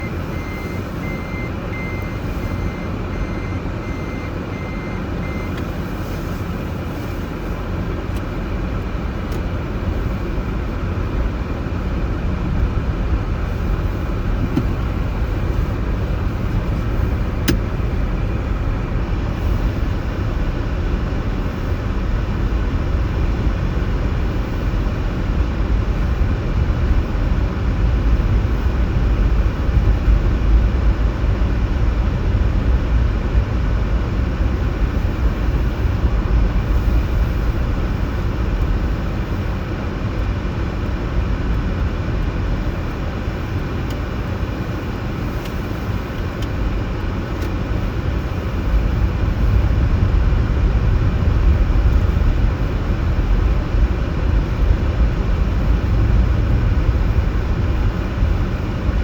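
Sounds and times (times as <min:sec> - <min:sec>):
electronic beeping: 0:00.0 - 0:05.6
traffic rumble: 0:00.0 - 0:59.0.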